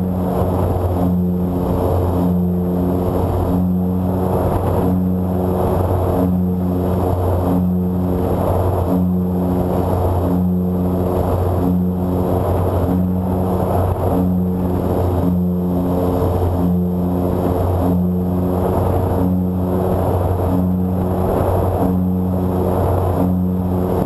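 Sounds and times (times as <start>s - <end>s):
electric motors and propellers droning: 0.0s - 24.0s
wind rush: 0.0s - 24.0s.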